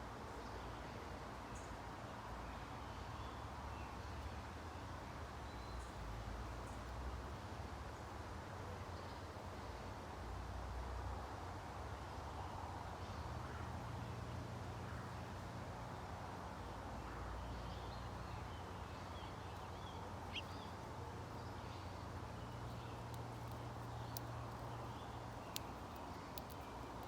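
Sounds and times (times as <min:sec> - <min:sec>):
low outdoor hum: 0:00.1 - 0:27.0
songbird chirps: 0:00.3 - 0:08.2, 0:16.6 - 0:27.0
faint clicks: 0:22.6 - 0:27.0.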